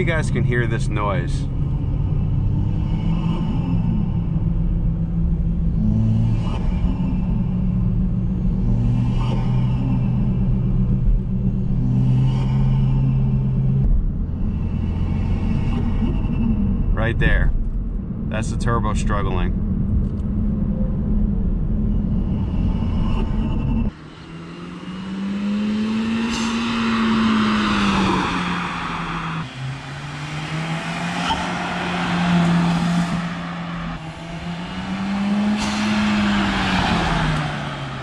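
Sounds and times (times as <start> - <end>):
car engine droning: 0.0 - 38.0
car driving past: 21.9 - 38.0.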